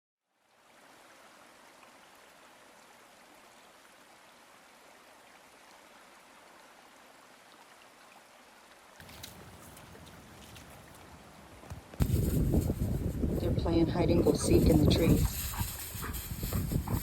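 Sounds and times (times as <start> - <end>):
rushing background hiss: 9.0 - 17.0.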